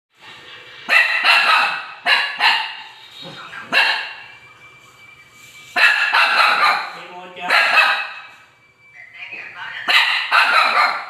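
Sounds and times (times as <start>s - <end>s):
dog barking: 0.9s - 3.0s, 3.6s - 4.3s, 5.8s - 8.3s, 9.9s - 11.0s.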